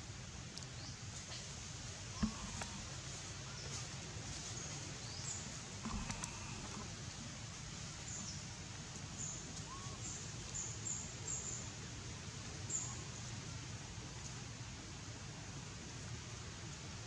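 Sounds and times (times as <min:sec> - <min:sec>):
outdoor background noise: 0:00.0 - 0:17.0
small birds chirping: 0:02.1 - 0:07.2.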